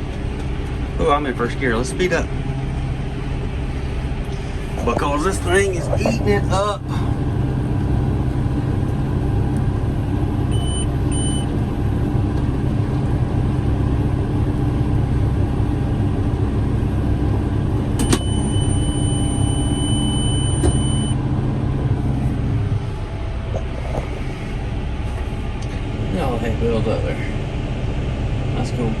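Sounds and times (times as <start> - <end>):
tractor engine running under load: 0.0 - 28.7
high electronic beep: 10.5 - 11.5, 18.0 - 21.2.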